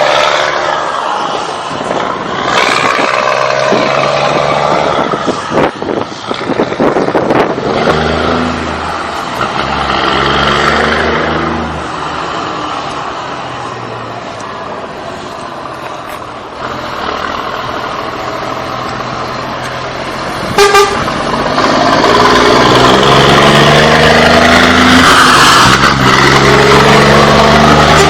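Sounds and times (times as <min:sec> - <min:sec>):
truck engine accelerating: 0:00.0 - 0:28.0
truck horn toot: 0:20.5 - 0:21.2, 0:27.8 - 0:28.0.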